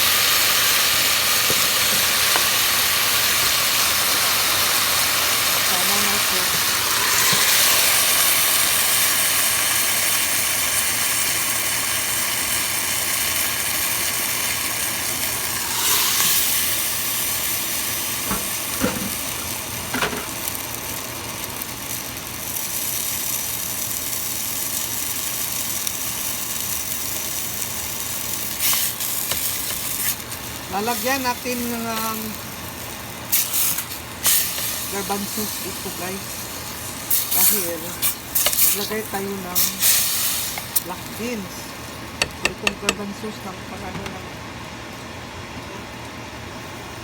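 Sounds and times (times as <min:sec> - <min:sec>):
chicken sizzling in a pan: 0:00.0 - 0:43.1
utensil knocking against pan: 0:42.2 - 0:43.0.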